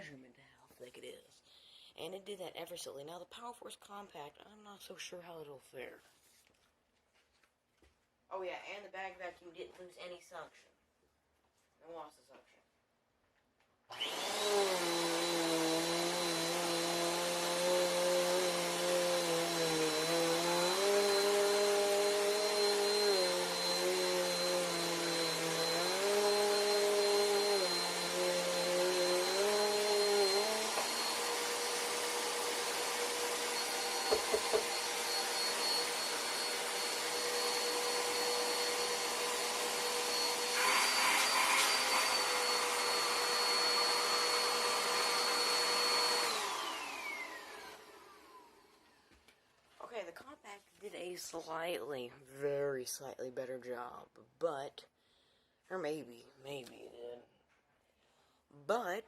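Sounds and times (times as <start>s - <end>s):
vacuum cleaner whine: 13.9s - 49.0s.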